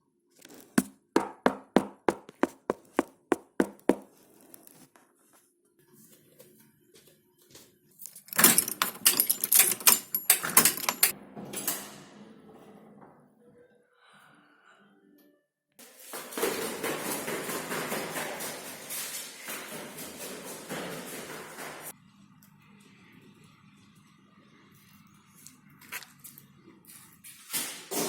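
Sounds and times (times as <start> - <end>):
knocking on a door: 1.2 - 4.0.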